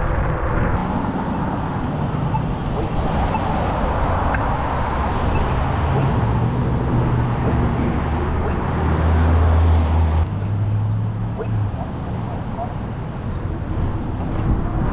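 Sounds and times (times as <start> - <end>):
road noise rumble: 0.0 - 14.9
wind noise: 0.0 - 14.9.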